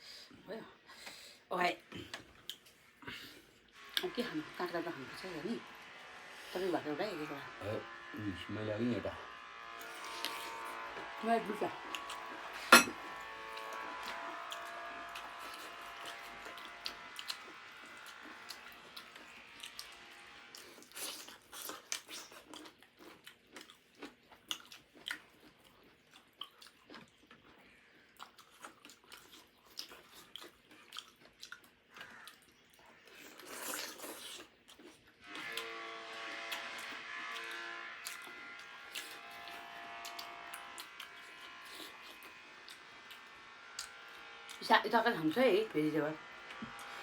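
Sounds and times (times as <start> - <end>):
chewing crisp cucumber: 2.0 - 4.1, 9.8 - 10.8, 11.8 - 35.7, 36.5 - 44.6.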